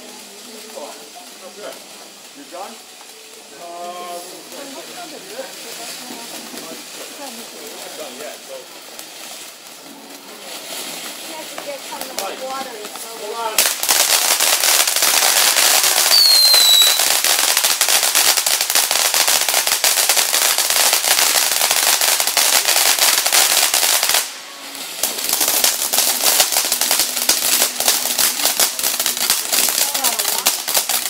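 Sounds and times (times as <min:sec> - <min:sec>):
fireworks crackling: 0:00.0 - 0:31.0
falling firework whistle: 0:15.0 - 0:18.6.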